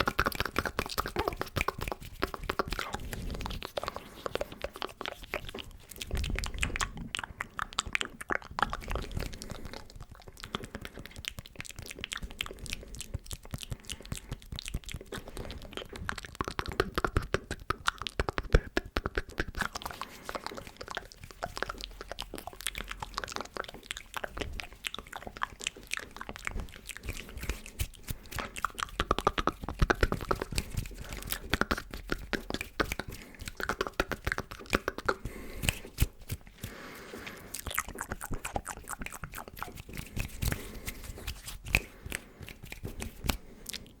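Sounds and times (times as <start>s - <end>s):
hand sounds: 0.0s - 6.9s, 26.0s - 44.0s
wet mouth clicks and smacks: 0.0s - 44.0s.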